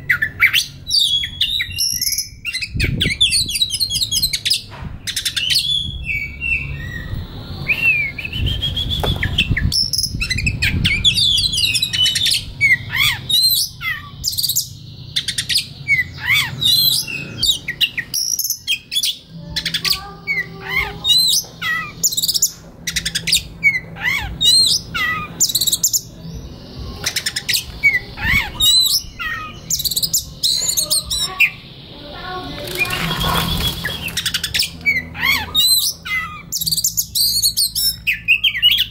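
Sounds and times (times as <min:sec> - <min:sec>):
bird singing whistles and chirps: 0:00.0 - 0:38.9.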